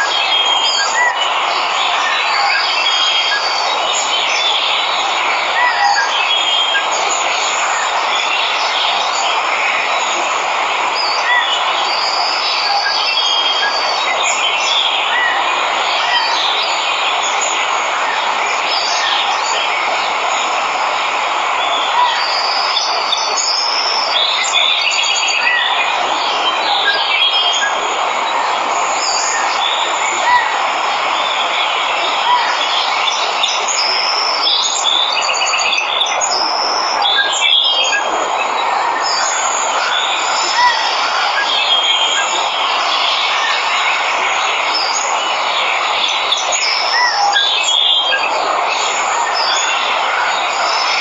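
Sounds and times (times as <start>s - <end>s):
waterfall rushing: 0.0s - 51.0s
birds chirping and trilling: 21.6s - 51.0s.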